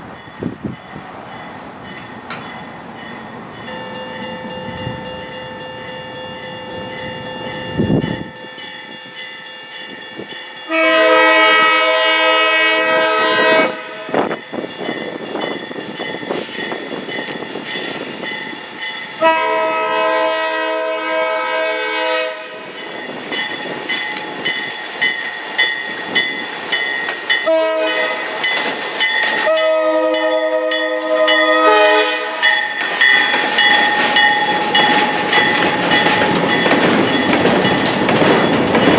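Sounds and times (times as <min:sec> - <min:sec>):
rail clicks: 0:00.0 - 0:11.3, 0:13.5 - 0:20.2, 0:22.0 - 0:38.9
train running noise: 0:00.0 - 0:38.9
locomotive air horn blasts: 0:10.7 - 0:14.2, 0:19.2 - 0:22.7, 0:27.4 - 0:28.3, 0:29.4 - 0:32.5.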